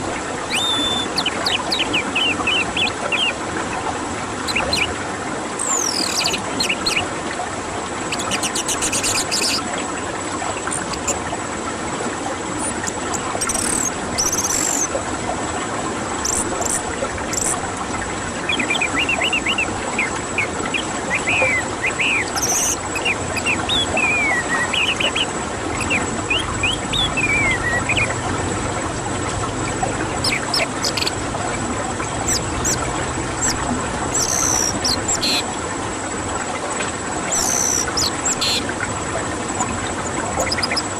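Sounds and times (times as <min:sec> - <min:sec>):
songbirds calling: 0:00.0 - 0:03.4, 0:04.4 - 0:05.0, 0:05.6 - 0:07.1, 0:08.0 - 0:09.9, 0:10.5 - 0:11.2, 0:12.6 - 0:15.0, 0:16.2 - 0:28.3, 0:29.6 - 0:35.5, 0:37.2 - 0:38.8, 0:39.6 - 0:40.9.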